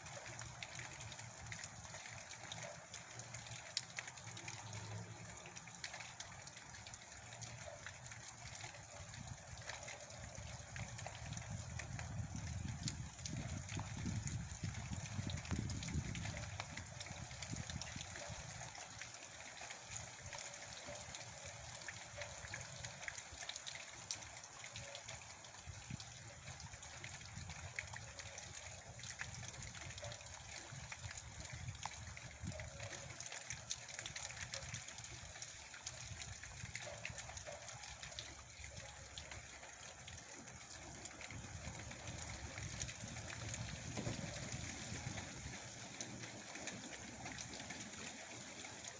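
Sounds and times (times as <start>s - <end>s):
heavy rain: 40.0s - 48.9s.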